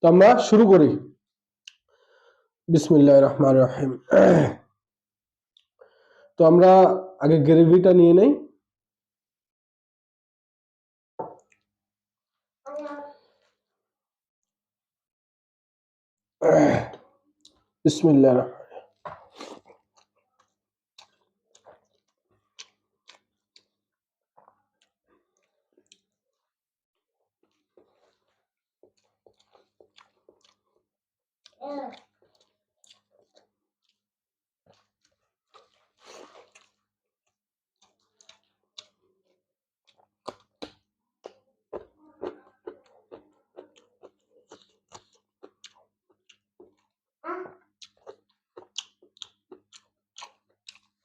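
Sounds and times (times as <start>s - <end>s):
person chewing food: 1.6s - 2.6s, 5.5s - 6.2s, 11.3s - 11.7s, 16.9s - 17.8s, 18.6s - 51.0s
wet lip smacks and mouth clicks: 47.8s - 51.0s.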